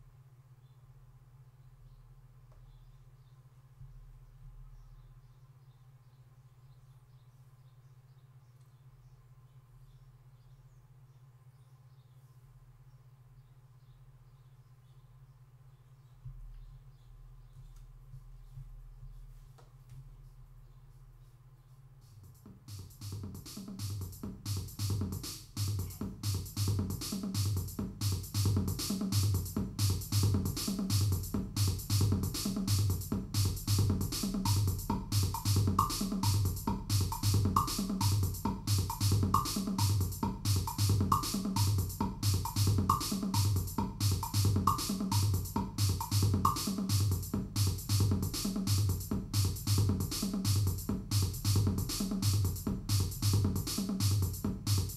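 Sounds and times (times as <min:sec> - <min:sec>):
synthesizer: 0:20.8 - 0:54.9
drum machine beat: 0:21.9 - 0:54.9.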